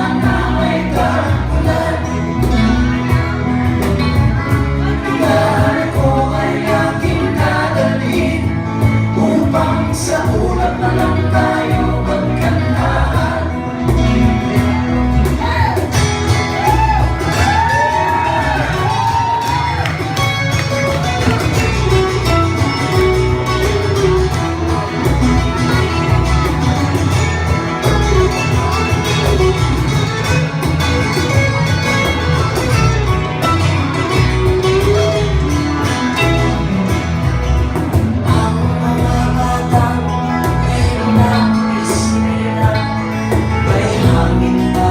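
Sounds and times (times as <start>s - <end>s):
live folk-rock band: 0.0s - 44.9s
sliding lead guitar: 0.0s - 44.9s
person singing: 4.8s - 14.8s, 38.0s - 44.9s.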